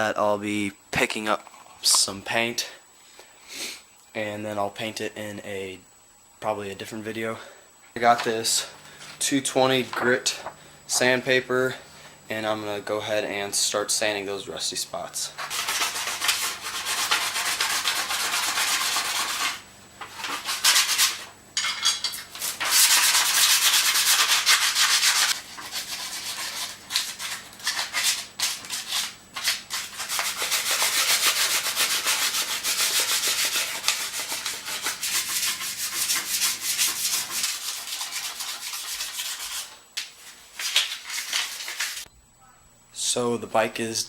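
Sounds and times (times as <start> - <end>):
sandpaper scratching on metal: 15.3 - 21.3, 22.3 - 42.0.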